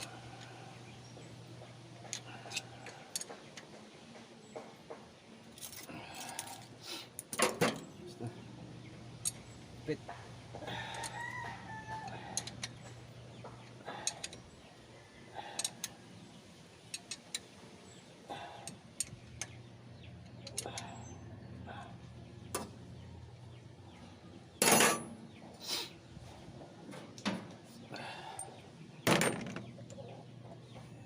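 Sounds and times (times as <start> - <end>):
metal tools clicking and clinking: 2.0 - 3.7, 12.1 - 14.6, 15.6 - 15.9, 16.9 - 17.5, 24.6 - 25.2
metal parts clattering: 24.6 - 25.1, 29.1 - 29.7.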